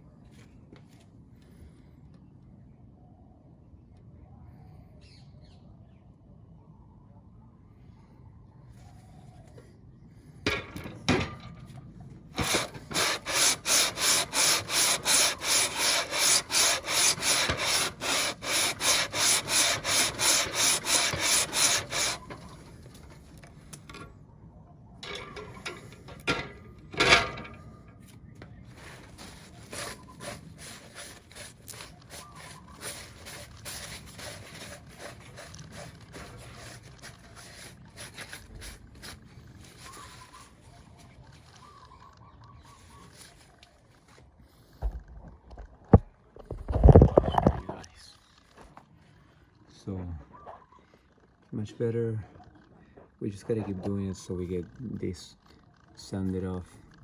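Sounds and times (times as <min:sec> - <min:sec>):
metal scraping on sandpaper: 0:12.4 - 0:23.5, 0:25.0 - 0:27.6, 0:28.7 - 0:40.7.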